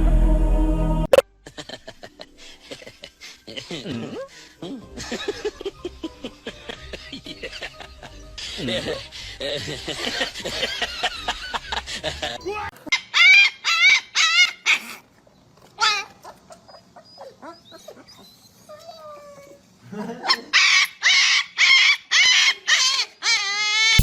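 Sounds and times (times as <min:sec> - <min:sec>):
dog yelping: 0:12.9 - 0:15.0, 0:15.8 - 0:19.6, 0:20.2 - 0:24.0
dog whimpering: 0:15.8 - 0:19.6.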